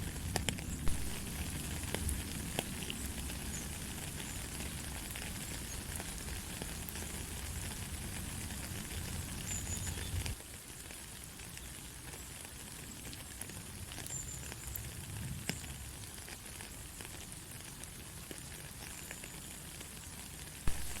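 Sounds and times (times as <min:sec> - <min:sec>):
light rain falling: 0:00.0 - 0:21.0
rain drop taps: 0:00.2 - 0:07.1, 0:20.7 - 0:21.0.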